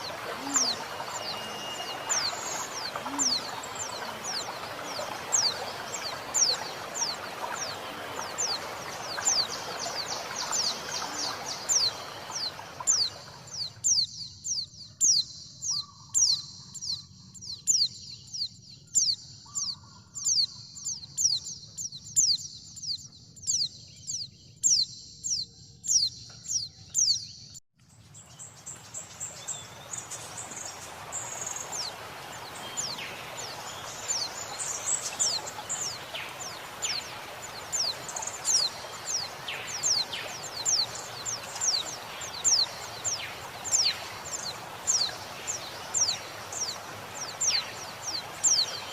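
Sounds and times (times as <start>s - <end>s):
bird high falling call: 0.0s - 13.1s
running water: 0.0s - 13.8s, 28.4s - 48.9s.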